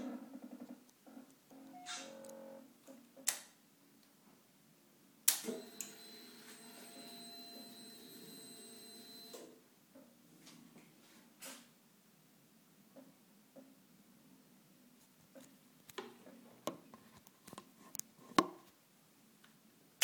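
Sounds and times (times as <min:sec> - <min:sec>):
electrical hum with high whine: 0:05.3 - 0:09.6.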